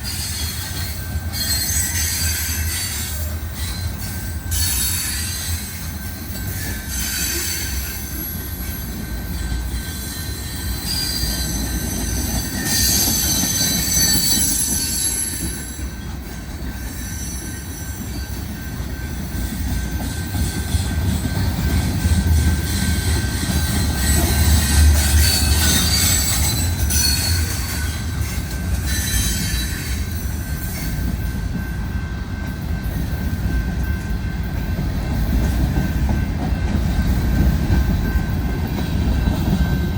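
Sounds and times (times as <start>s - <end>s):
wheel flange squeal: 0.0s - 18.7s, 22.0s - 31.1s
train cars rumbling past: 0.0s - 39.9s.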